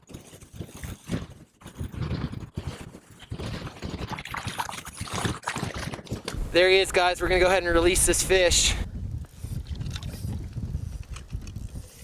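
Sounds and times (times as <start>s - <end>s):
wind buffeting microphone: 5.1s - 12.0s.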